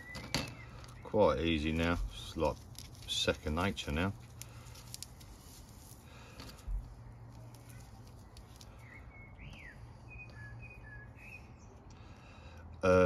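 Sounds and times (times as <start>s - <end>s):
bird chirping: 0.0s - 1.8s, 7.5s - 11.9s.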